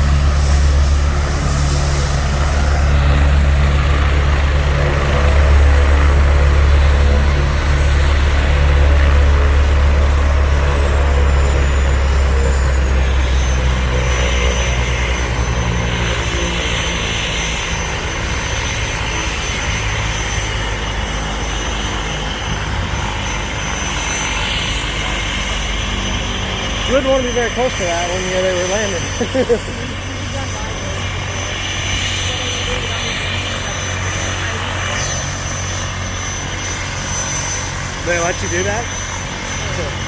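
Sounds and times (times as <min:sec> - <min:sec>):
helicopter rotor hum: 0:00.0 - 0:40.0
helicopter turbine whine: 0:00.0 - 0:40.0.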